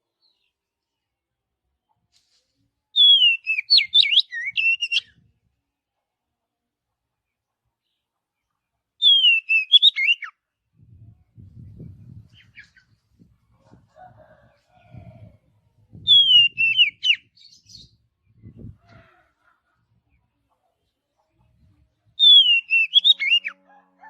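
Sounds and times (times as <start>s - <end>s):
bird singing whistled phrases: 3.0s - 5.1s, 9.0s - 10.3s, 16.1s - 17.9s, 22.2s - 23.6s.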